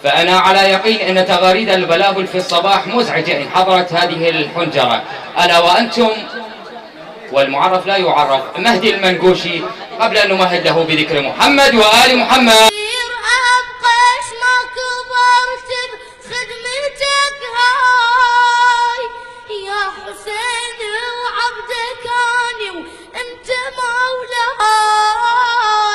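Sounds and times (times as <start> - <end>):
high voice singing devotional chant: 0.0 - 6.6, 7.3 - 25.9.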